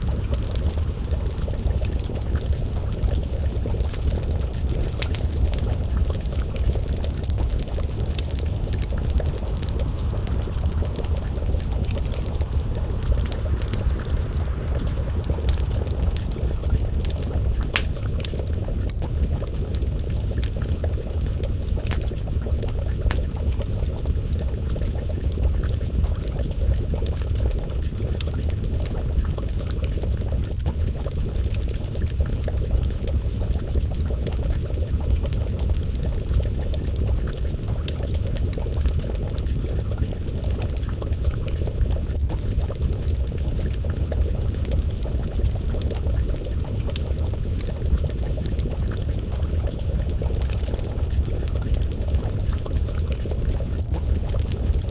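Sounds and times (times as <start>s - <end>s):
stew bubbling in a pot: 0.0s - 54.9s
wood fire crackling and popping: 0.0s - 54.9s.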